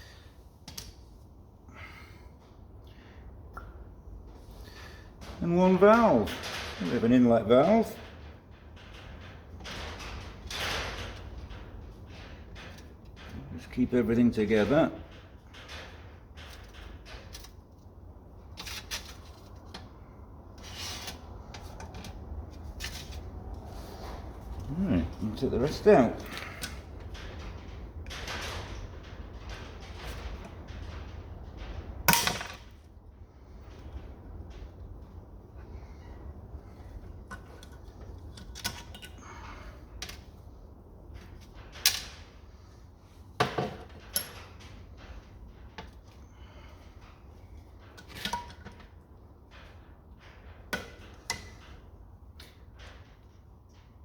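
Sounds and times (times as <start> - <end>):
metal tools clicking and clanking: 20.6 - 32.9, 43.4 - 46.2.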